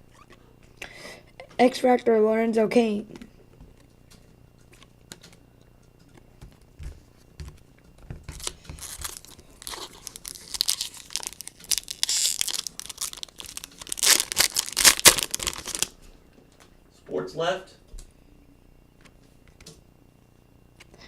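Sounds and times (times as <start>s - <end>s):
foil wrapper tearing and crinkling: 8.3s - 16.0s.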